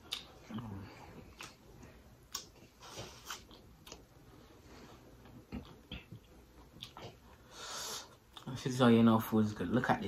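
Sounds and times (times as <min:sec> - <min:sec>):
wet chewing mouth clicks: 0:00.0 - 0:01.6, 0:02.2 - 0:04.1, 0:05.5 - 0:07.3.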